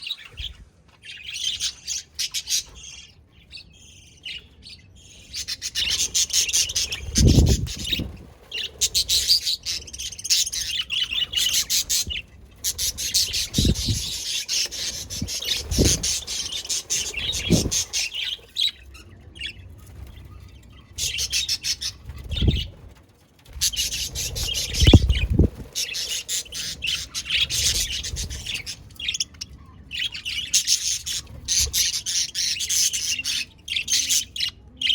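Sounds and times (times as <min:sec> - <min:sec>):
budgies chattering and chirping: 0:00.0 - 0:34.9.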